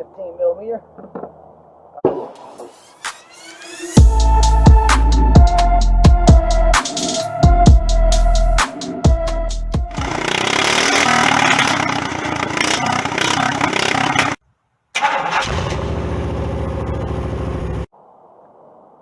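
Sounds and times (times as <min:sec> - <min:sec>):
electronic music: 0:02.1 - 0:10.4
engine running loudly: 0:15.4 - 0:17.9.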